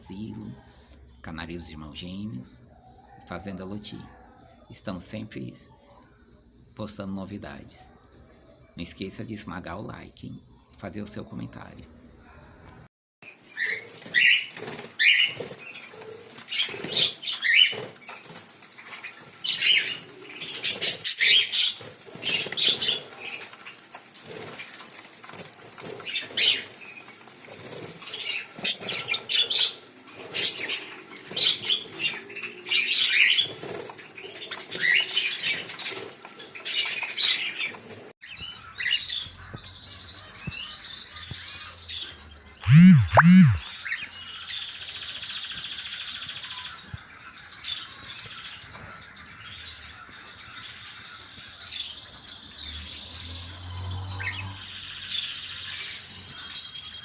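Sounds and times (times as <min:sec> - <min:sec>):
parrots chirping and chattering: 0:13.2 - 0:37.8, 0:42.6 - 0:43.6
wings flapping: 0:13.5 - 0:32.5.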